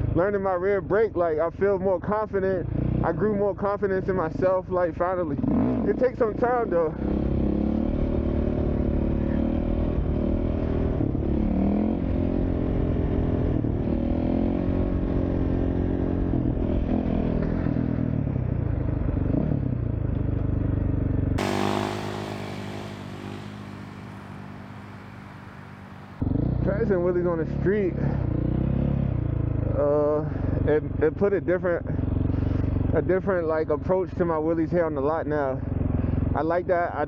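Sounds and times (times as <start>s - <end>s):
dirt bike engine revving: 21.4s - 26.2s.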